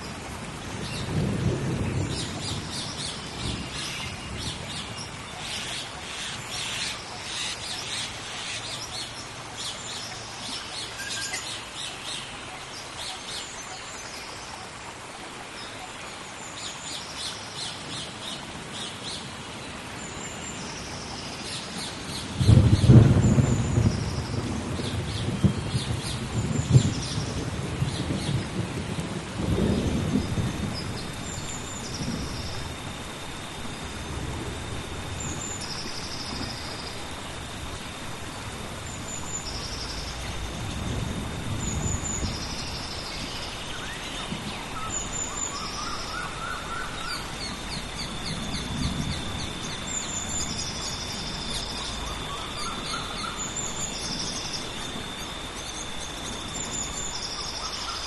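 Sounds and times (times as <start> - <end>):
low rolling thunder: 0.0 - 5.2, 22.3 - 57.4
steady rain: 0.0 - 58.0.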